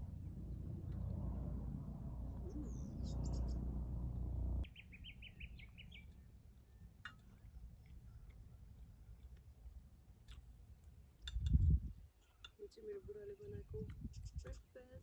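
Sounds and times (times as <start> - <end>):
low rumble: 0.0 - 4.7
wild birds calling: 2.3 - 6.8.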